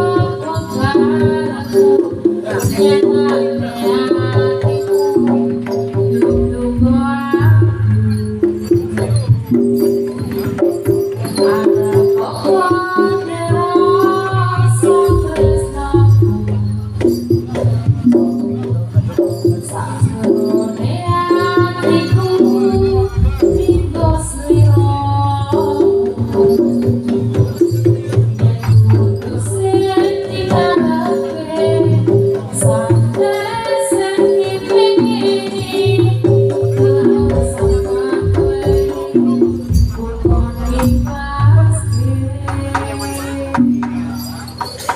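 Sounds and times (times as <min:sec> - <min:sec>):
gamelan ensemble playing: 0:00.0 - 0:44.9
hand drums: 0:00.0 - 0:44.9
metallophone notes: 0:00.0 - 0:44.9
wavering melody line: 0:00.0 - 0:44.9.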